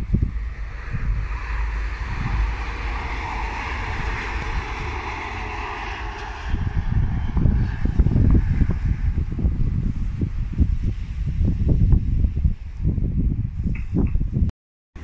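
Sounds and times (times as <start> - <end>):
train rolling past: 0.0 - 9.4
wind buffeting microphone: 0.0 - 15.0.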